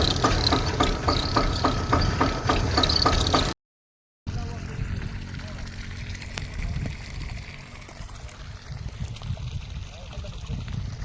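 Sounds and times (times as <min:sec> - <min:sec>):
low uneven rumble: 0:04.3 - 0:11.0
water rushing and splashing: 0:04.3 - 0:11.0.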